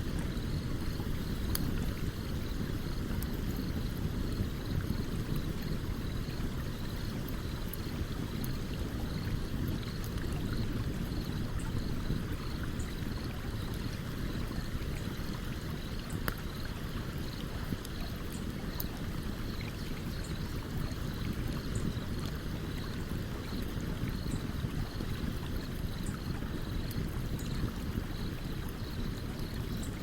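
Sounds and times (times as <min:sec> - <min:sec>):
campfire crackling: 0:00.0 - 0:19.4
stream running: 0:00.0 - 0:30.0.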